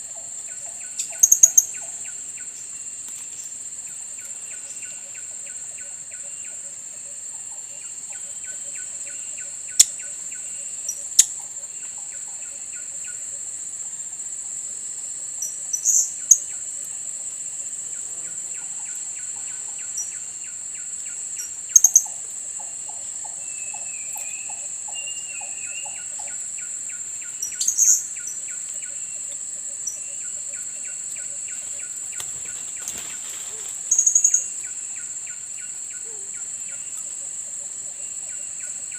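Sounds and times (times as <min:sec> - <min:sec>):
high-pitched insect drone: 0:00.0 - 0:38.9.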